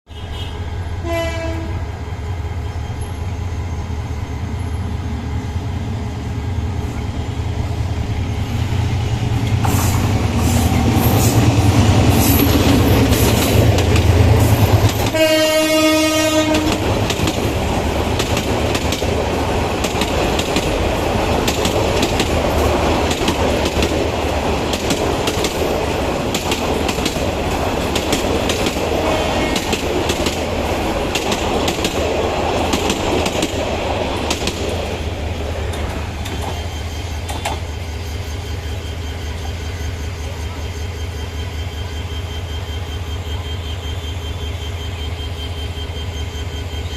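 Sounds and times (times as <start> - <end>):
train horn blast: 0.1 - 2.0, 15.0 - 17.0
diesel train engine rumble: 0.1 - 46.9
train wheels clattering over rails: 7.7 - 38.7.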